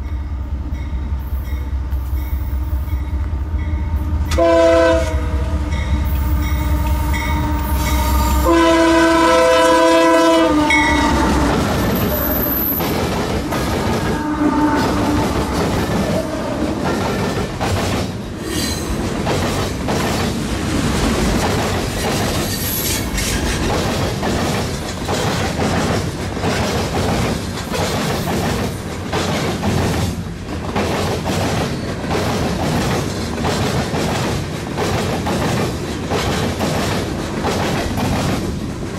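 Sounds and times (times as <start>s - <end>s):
locomotive horn blast: 1.8s - 12.8s, 14.0s - 17.0s
train wheels clicking over rail joints: 11.2s - 38.9s.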